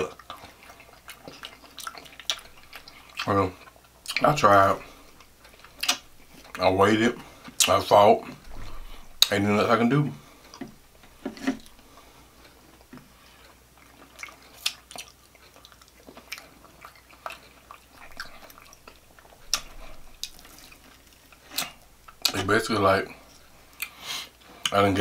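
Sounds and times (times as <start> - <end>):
person chewing with wet smacks: 0.0 - 8.4, 10.2 - 24.9.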